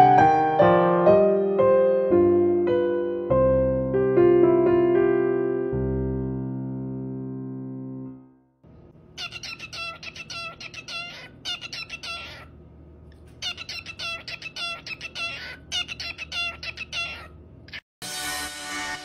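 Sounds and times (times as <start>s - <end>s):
cockatiel chirping: 9.2s - 12.5s, 13.4s - 17.8s.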